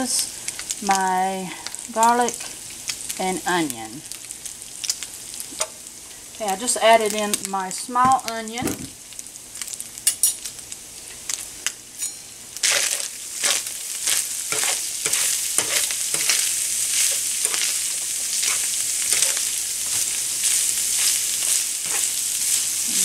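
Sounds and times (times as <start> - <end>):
meat sizzling in a skillet: 0.0 - 23.0
spoon scraping a pan: 12.0 - 23.0.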